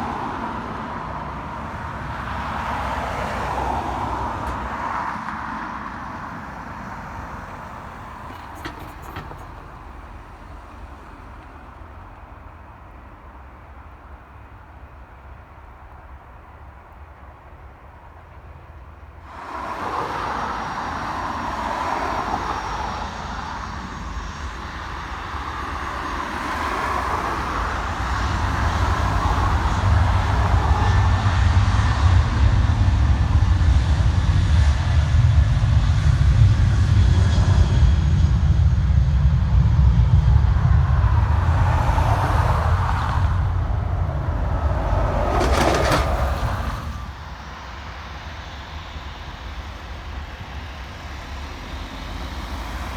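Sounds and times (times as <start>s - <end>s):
airliner passing: 19.2s - 52.9s.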